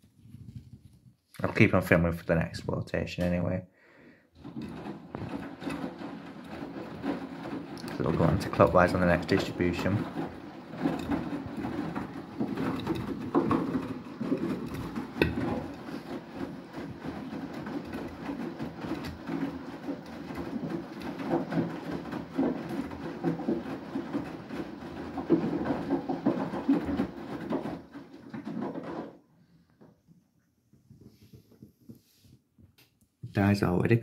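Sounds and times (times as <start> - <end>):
washing machine drum turning: 4.4 - 29.2
washing machine knock: 4.4 - 29.2
water sloshing: 4.4 - 29.2
clothes tumbling: 4.4 - 30.1.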